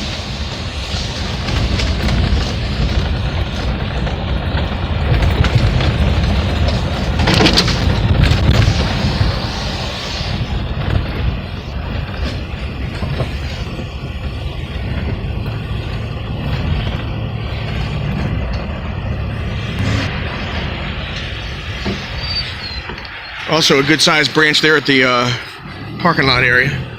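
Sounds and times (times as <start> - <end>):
tyres rumbling over slush: 0.0 - 26.9
crunching and knocking: 1.2 - 9.6.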